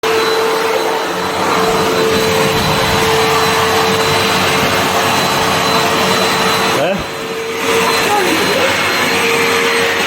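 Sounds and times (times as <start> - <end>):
vacuum cleaner running: 0.0 - 10.0.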